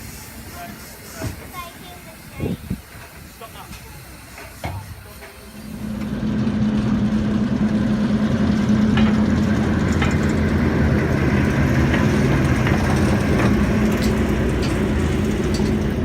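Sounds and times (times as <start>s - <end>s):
diesel engine idling: 5.4s - 16.0s.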